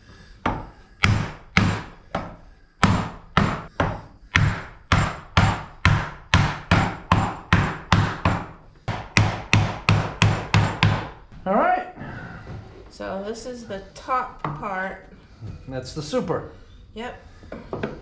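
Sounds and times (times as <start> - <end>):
hammer knocking on wood: 0.4 - 11.4.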